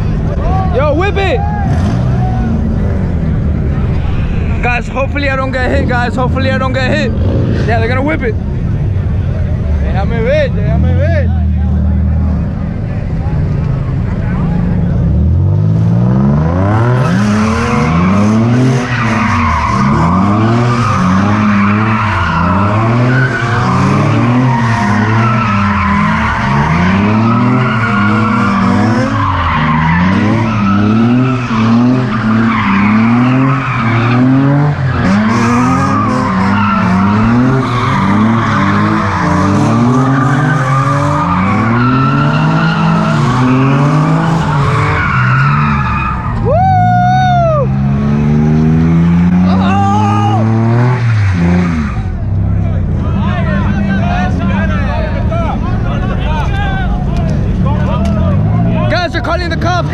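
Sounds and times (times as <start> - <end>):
car engine revving: 0.0 - 46.6, 47.5 - 59.9.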